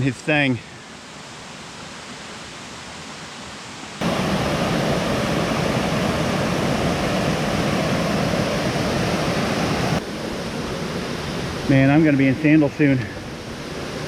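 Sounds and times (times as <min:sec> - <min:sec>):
waterfall rushing: 0:04.0 - 0:14.0.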